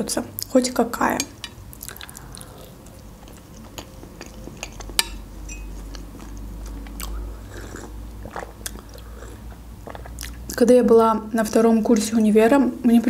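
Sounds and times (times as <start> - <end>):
wet mouth sounds: 1.7 - 5.0, 5.8 - 10.6
chewing meringue: 1.7 - 10.7.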